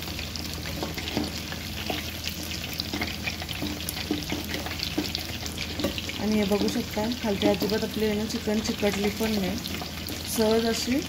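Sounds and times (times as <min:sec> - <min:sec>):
chicken sizzling in hot oil: 0:00.0 - 0:11.0
utensil scraping pan: 0:00.6 - 0:06.7.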